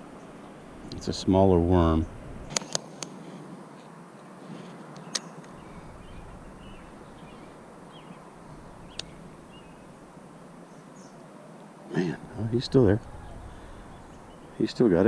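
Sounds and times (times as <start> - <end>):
background hiss: 0.0 - 15.0
faint birds chirping: 0.0 - 15.0
sharp clicks: 2.5 - 3.1.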